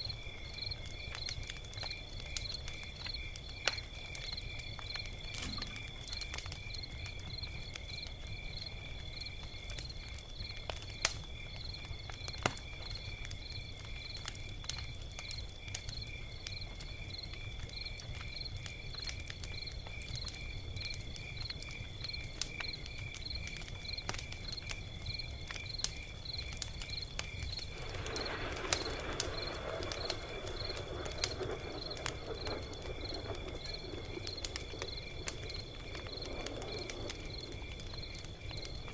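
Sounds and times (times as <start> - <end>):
cricket chirping: 0.0 - 38.9
log fire crackling and popping: 0.0 - 38.9
rushing hiss from fire: 25.7 - 38.9.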